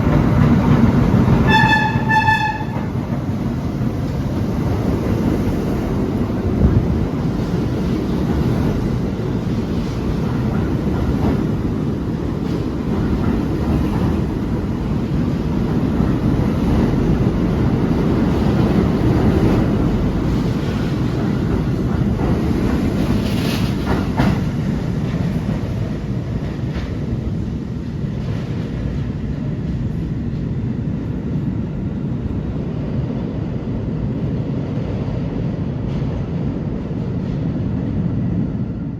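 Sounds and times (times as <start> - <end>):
subway train rumble: 0.0 - 38.9.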